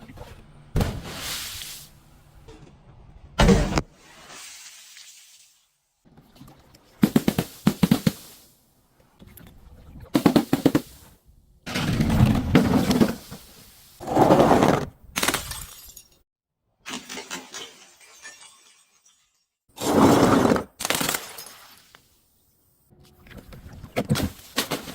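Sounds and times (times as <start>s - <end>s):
glass crushing and breaking: 15.2s - 16.2s, 16.9s - 19.6s.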